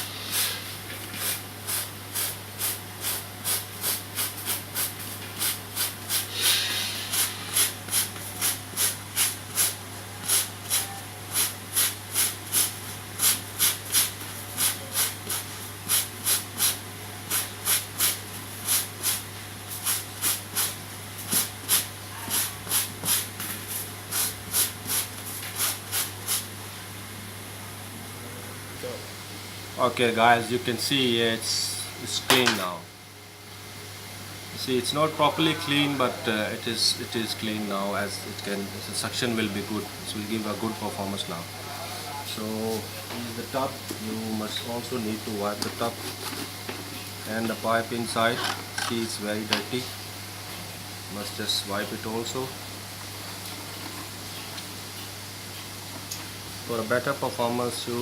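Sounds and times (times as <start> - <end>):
stiff brush scrubbing filter: 0.0 - 26.4.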